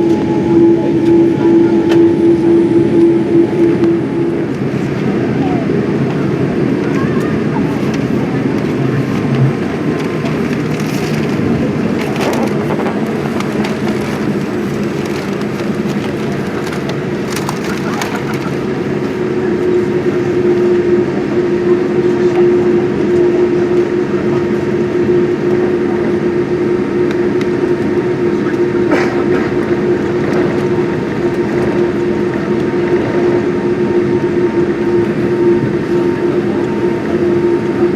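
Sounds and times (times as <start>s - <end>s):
cabin tone: 0.0s - 4.9s
aircraft engine drone: 0.0s - 37.9s.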